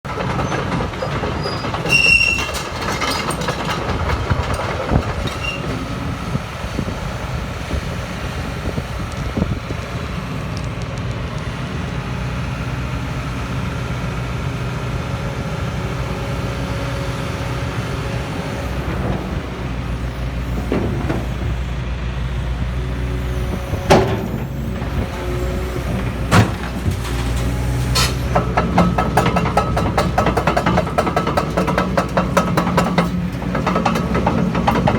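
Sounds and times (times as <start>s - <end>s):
excavator diesel engine running: 0.1s - 34.9s
sharp knocks and clanks: 26.3s - 34.9s.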